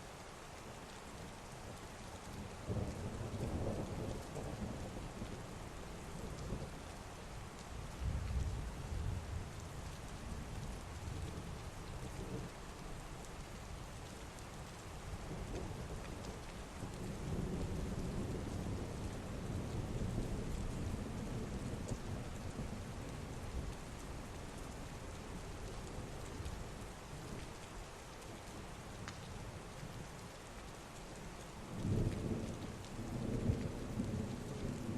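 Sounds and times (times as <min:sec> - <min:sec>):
heavy rain: 0:00.0 - 0:34.9
low roll of thunder: 0:02.6 - 0:06.8, 0:07.9 - 0:12.5, 0:15.1 - 0:24.6, 0:31.7 - 0:34.9.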